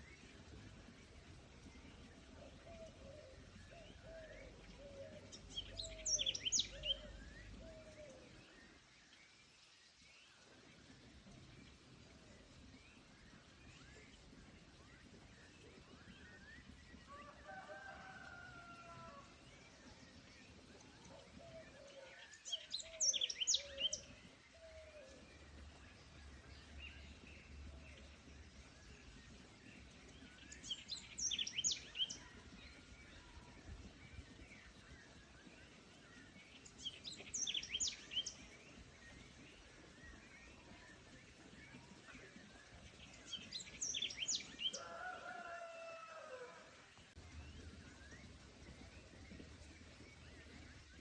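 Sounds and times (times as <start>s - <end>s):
faint forest ambience: 0.0s - 51.0s
songbird singing high phrase: 36.0s - 39.4s.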